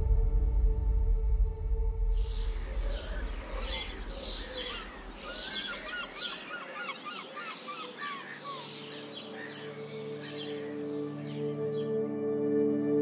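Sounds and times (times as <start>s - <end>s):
soft ambient music: 0.0s - 13.0s
birds singing: 2.2s - 12.1s.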